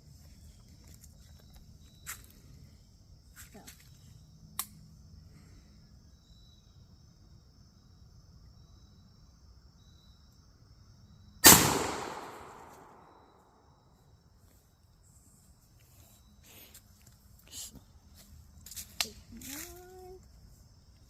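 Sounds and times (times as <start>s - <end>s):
shotgun shot: 11.4s - 13.4s.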